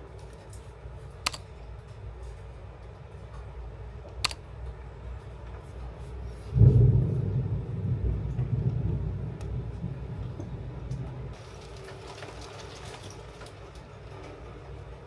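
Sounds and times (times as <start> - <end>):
sharp click: 1.3 - 1.5
low rumble: 6.6 - 11.4.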